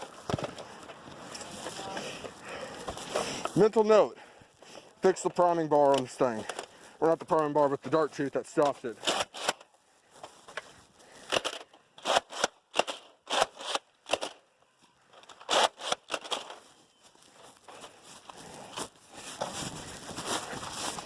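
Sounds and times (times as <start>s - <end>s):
toy blaster priming clicks: 15.2s - 16.5s.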